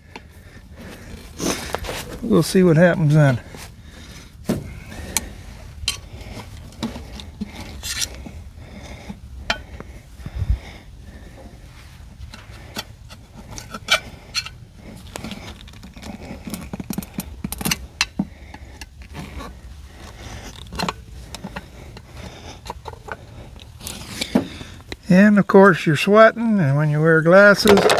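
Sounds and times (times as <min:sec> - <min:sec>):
metal clinks and scrapes: 0:05.0 - 0:08.2, 0:12.2 - 0:24.4.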